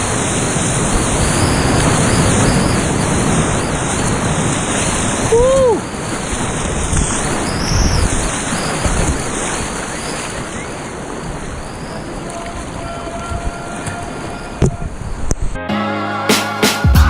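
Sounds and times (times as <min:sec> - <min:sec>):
river whitewater rushing: 0:00.0 - 0:15.3
wind buffeting microphone: 0:00.0 - 0:15.6.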